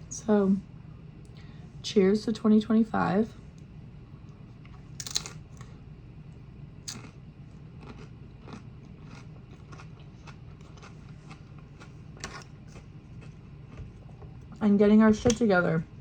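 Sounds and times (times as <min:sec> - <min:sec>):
crisp chewing crunches: 0:04.7 - 0:05.7, 0:06.9 - 0:14.6.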